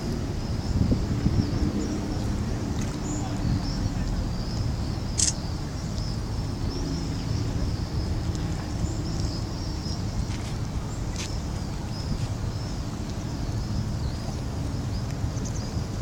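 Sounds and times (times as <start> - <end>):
wind rumble on microphone: 0.0 - 16.0
brief clicks: 5.2 - 5.4.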